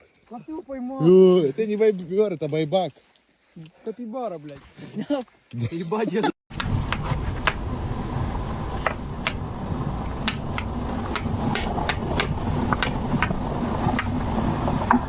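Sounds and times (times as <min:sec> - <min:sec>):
steady low rumble: 0:06.5 - 0:15.0.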